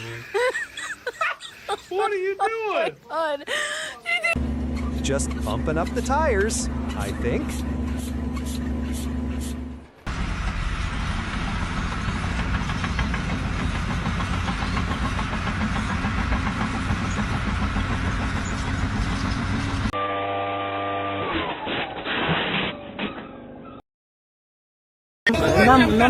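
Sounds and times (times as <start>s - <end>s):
engine rumbling and rattling: 4.4s - 20.0s.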